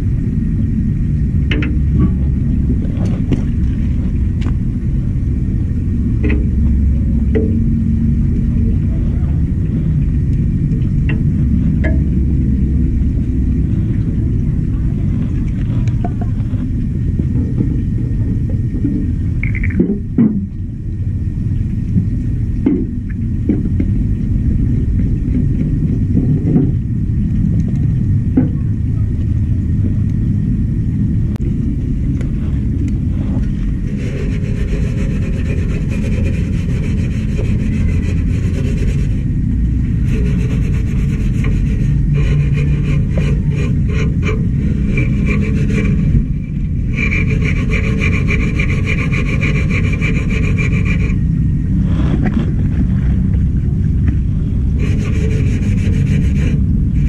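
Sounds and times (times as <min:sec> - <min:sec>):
low rumble: 0:00.0 - 0:57.0
steel wool scrubbing metal: 0:33.1 - 0:51.3, 0:54.8 - 0:57.0.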